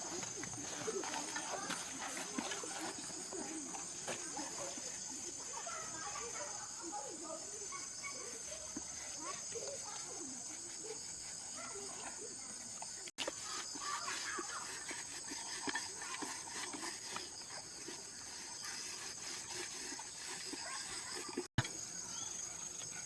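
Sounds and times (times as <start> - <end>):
chickens clucking: 0.0 - 6.8
insect chorus: 0.0 - 23.0.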